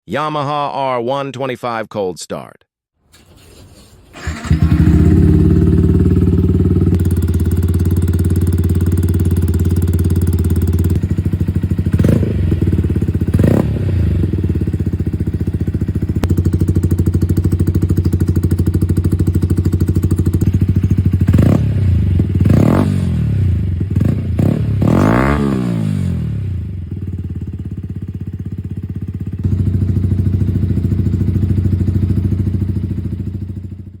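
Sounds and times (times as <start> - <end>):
motorcycle engine starting and idling: 3.1 - 34.0
motorcycle throttle blips: 4.2 - 26.1.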